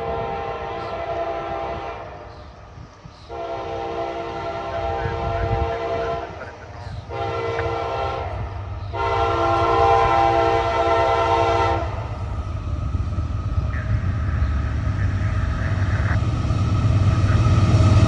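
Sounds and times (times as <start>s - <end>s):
diesel train rumbling past: 0.0s - 18.0s
locomotive air horn blasts: 0.1s - 2.1s, 3.3s - 6.4s, 7.1s - 12.0s.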